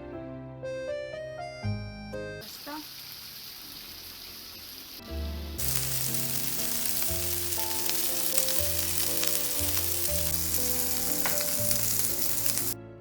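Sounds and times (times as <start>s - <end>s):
food sizzling in a hot pan: 2.4s - 12.8s
soft background music: 5.0s - 13.0s.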